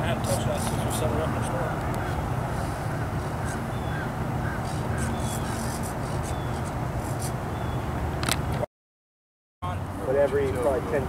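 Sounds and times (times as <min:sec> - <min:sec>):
bird chirping: 0:02.9 - 0:07.9.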